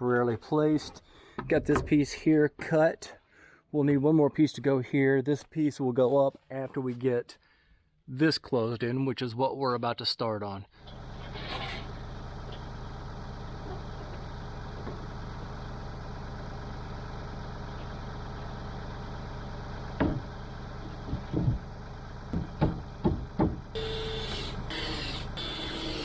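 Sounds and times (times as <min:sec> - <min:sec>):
small engine idling: 0:10.8 - 0:26.0
sharp knocks: 0:22.4 - 0:23.7.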